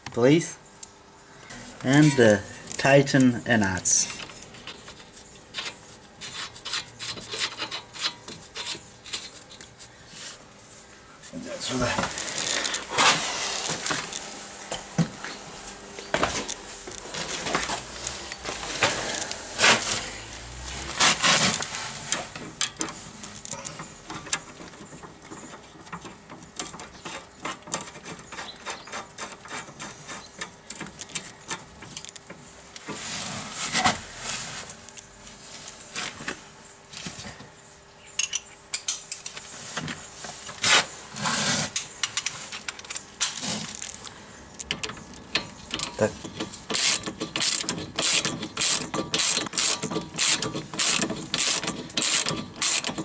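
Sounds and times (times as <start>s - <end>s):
ratchet wrench clicking: 46.7s - 53.0s.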